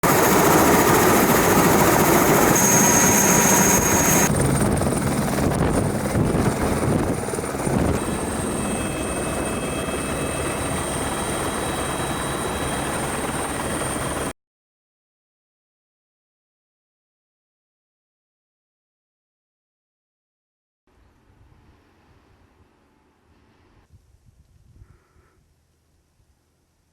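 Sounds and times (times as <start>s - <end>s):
helicopter rotor and engine: 0.0s - 14.3s.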